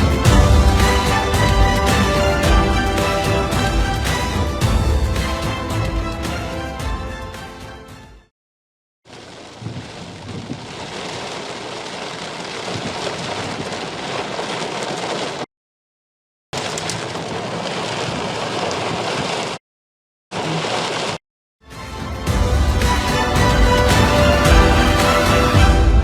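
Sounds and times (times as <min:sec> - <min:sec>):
heavy rain: 0:00.0 - 0:06.7, 0:09.1 - 0:15.4, 0:16.6 - 0:19.6, 0:20.4 - 0:21.2, 0:22.3 - 0:26.0.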